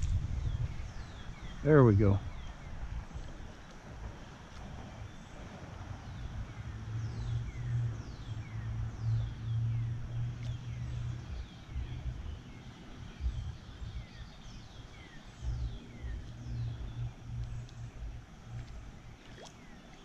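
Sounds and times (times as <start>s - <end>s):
wind on microphone: 0.0s - 19.9s
bird chirping: 6.0s - 20.0s.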